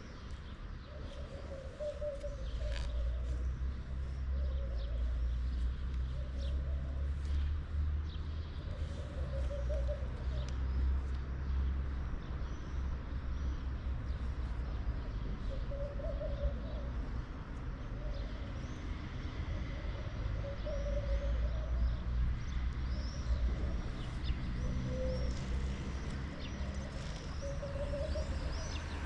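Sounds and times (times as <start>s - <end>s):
small birds chirping: 22.4s - 29.0s.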